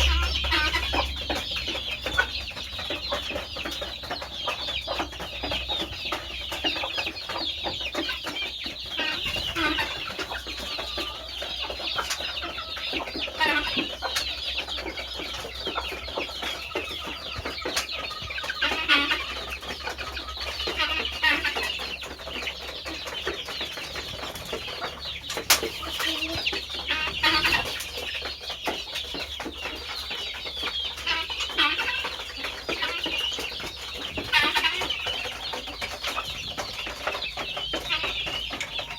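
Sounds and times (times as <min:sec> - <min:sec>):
low steady hum: 0:00.0 - 0:02.0
chickens clucking: 0:00.0 - 0:38.9.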